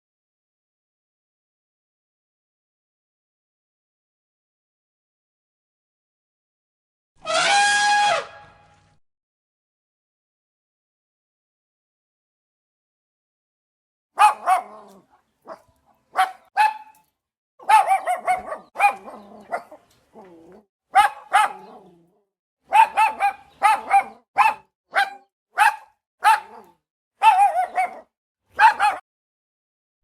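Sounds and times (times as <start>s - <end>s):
dog barking: 14.2s - 17.0s, 17.6s - 22.1s, 22.7s - 29.0s.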